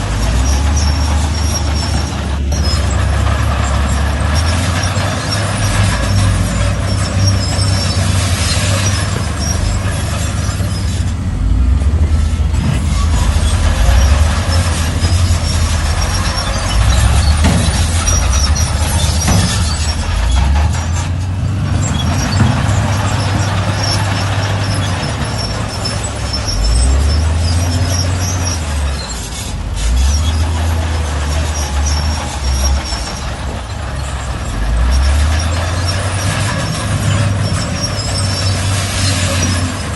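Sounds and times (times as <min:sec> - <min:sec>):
bulldozer diesel engine working: 0:00.0 - 0:39.9
high squeaks: 0:00.0 - 0:39.9.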